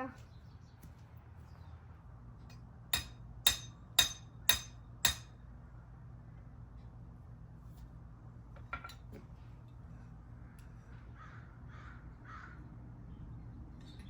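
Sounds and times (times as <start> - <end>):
hammer striking nail: 3.0 - 5.3.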